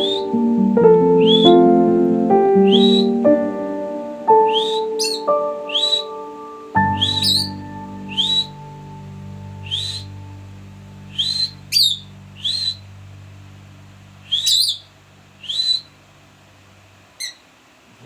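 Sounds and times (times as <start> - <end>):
steady low drone: 0.0 - 4.8, 6.8 - 16.9
parrot whistled chirps: 1.2 - 1.6, 2.6 - 3.2, 4.5 - 6.2, 6.9 - 8.6, 9.6 - 10.1, 11.1 - 12.8, 14.3 - 15.9.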